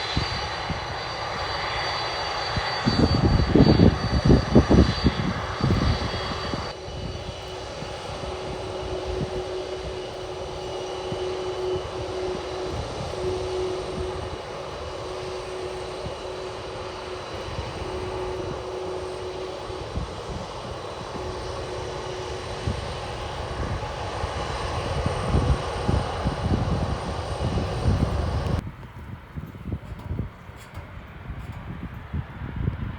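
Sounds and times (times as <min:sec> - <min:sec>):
jet engines roaring: 0:00.0 - 0:32.9
low rumble gusts: 0:00.0 - 0:32.9.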